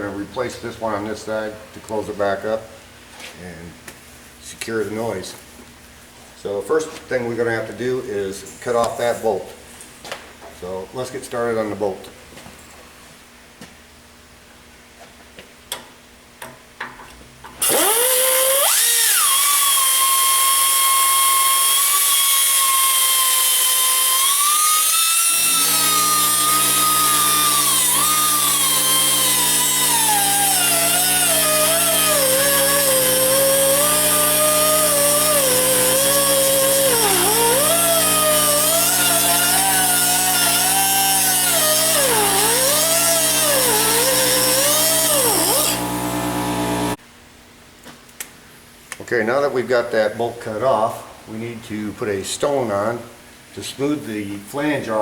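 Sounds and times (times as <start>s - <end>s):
die grinder whining and cutting: 17.6s - 47.0s.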